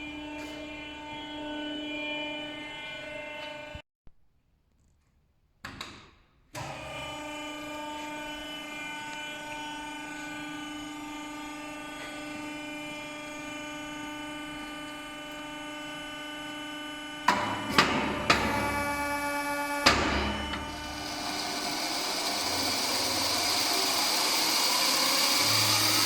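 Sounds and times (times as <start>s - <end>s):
saw chain whining: 18.5s - 26.0s.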